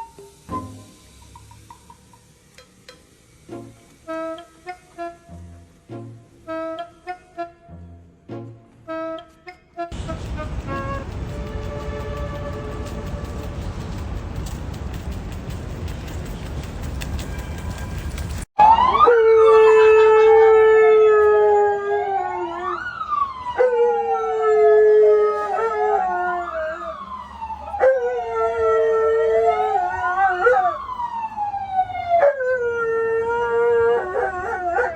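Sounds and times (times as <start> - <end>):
siren wailing: 18.6 - 34.9
dog howling: 19.0 - 22.9, 23.6 - 31.1, 32.0 - 34.9.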